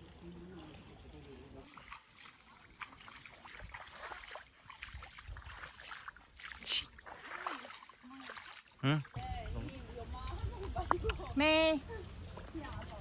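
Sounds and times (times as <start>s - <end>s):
water sloshing and trickling: 0.0s - 13.0s
water splash: 1.6s - 11.2s.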